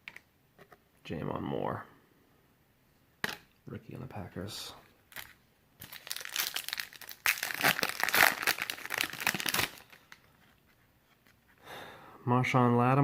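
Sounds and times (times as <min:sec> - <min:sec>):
wrapper crinkling: 0:05.1 - 0:10.2.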